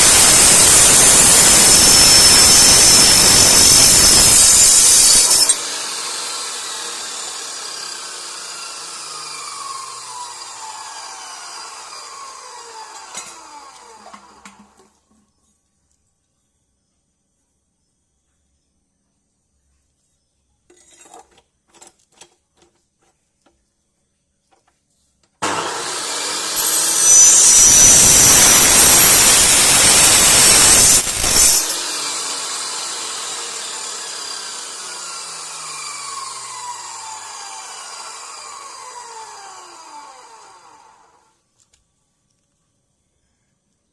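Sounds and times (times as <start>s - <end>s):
motor whine winding down: 0.0s - 14.4s, 25.4s - 41.2s
power tool cutting steel: 0.0s - 14.6s, 25.4s - 41.3s.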